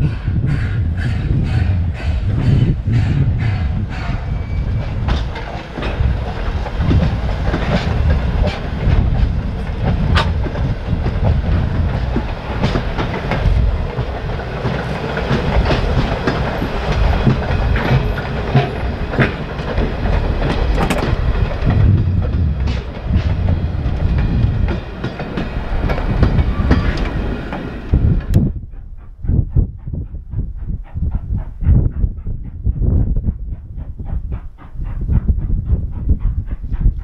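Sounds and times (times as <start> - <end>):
train cars rumbling: 0.0 - 37.0
wheels clicking over rail joints: 4.8 - 28.4.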